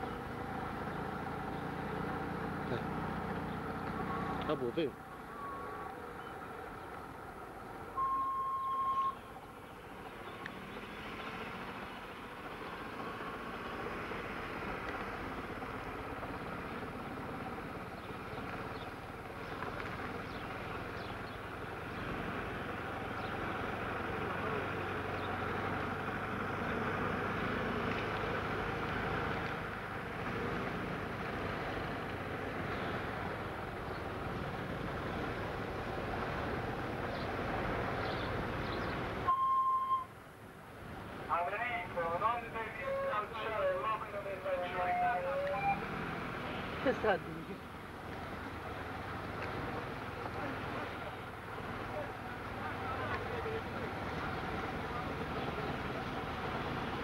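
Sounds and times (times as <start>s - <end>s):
vehicle engine running: 0.0s - 7.8s, 9.8s - 39.3s, 41.0s - 57.0s
loud single-tone beep: 8.0s - 9.3s, 39.3s - 40.1s.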